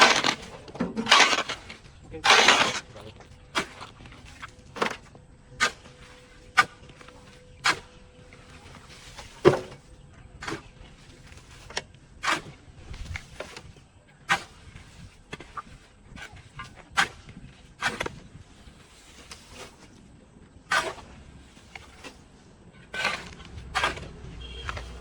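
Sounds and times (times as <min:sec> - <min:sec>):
hand tool chopping weeds: 0:00.0 - 0:02.8, 0:23.0 - 0:25.0.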